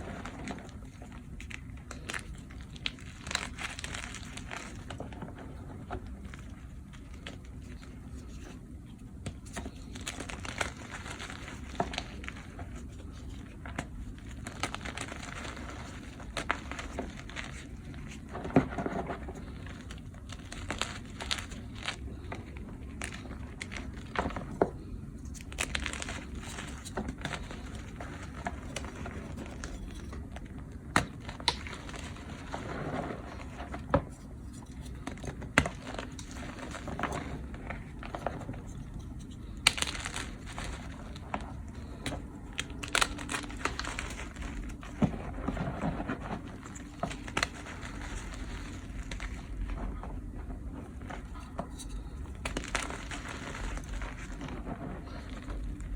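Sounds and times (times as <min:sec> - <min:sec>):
chalk crumbling and crunching: 0:00.0 - 0:55.9.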